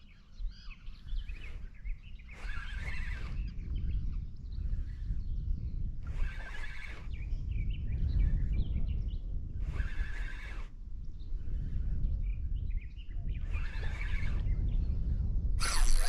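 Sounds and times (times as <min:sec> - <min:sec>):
faint bird chirps: 0:00.0 - 0:08.5
wind rumble on microphone: 0:00.0 - 0:16.0
bird harsh whinny-like call: 0:15.6 - 0:16.0.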